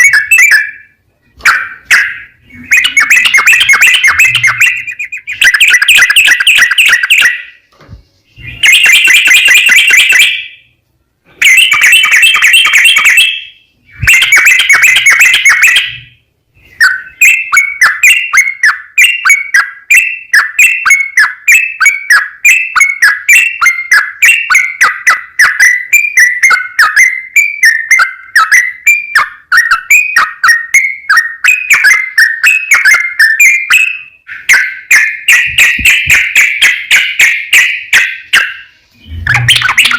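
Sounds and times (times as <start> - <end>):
bird singing chattering song: 0.0 - 7.7, 8.3 - 39.9
bird bubbling repeated notes: 1.4 - 7.5, 13.9 - 16.1, 35.2 - 39.9.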